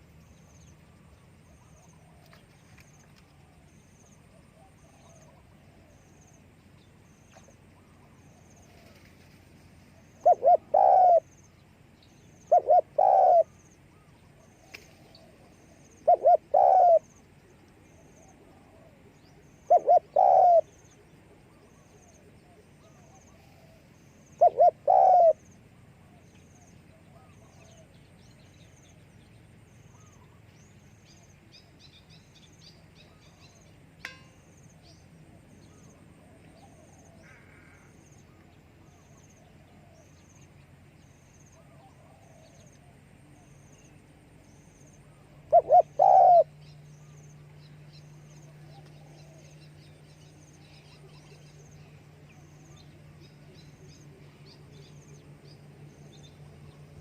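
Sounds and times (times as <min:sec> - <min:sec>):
dove cooing: 0:07.8 - 0:11.3, 0:12.4 - 0:17.2, 0:17.9 - 0:26.2, 0:41.6 - 0:43.0, 0:45.4 - 0:46.6.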